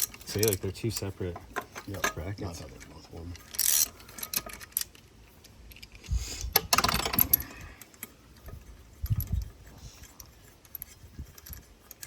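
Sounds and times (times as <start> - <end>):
metal hardware clinking: 0.0 - 5.0, 5.7 - 8.1.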